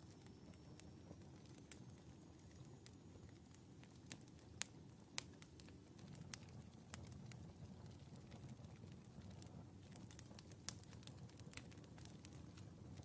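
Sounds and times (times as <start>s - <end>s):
fire crackling in a fireplace: 0.0s - 13.0s.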